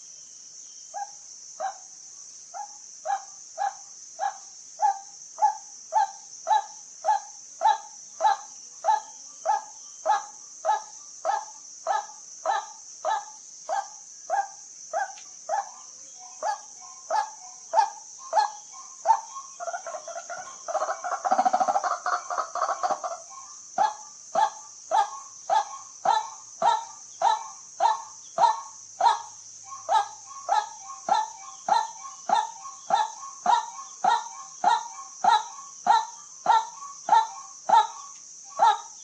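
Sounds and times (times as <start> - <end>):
high insect buzz: 0.0 - 39.0
waterhen calling: 15.5 - 24.0.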